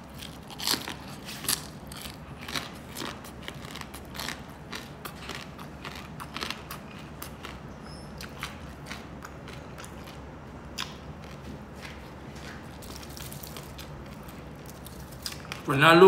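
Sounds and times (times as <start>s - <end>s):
chewing crunchy pork crackling: 0.0s - 15.8s.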